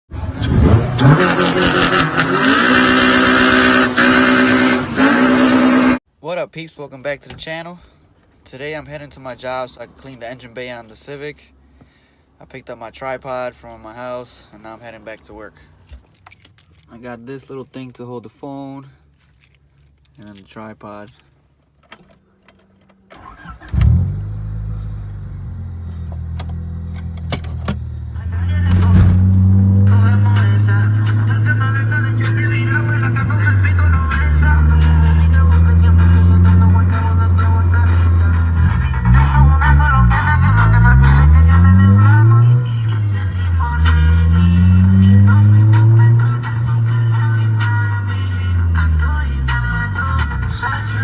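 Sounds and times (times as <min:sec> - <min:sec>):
car engine revving: 0:00.1 - 0:06.0, 0:23.2 - 0:51.0.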